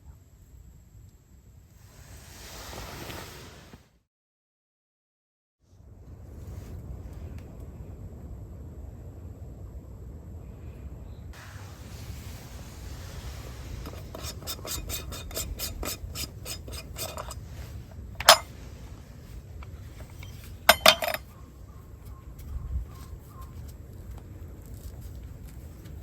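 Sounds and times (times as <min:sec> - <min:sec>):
metal utensils clinking on cookware: 0:13.9 - 0:17.4, 0:18.2 - 0:18.5, 0:20.0 - 0:21.3.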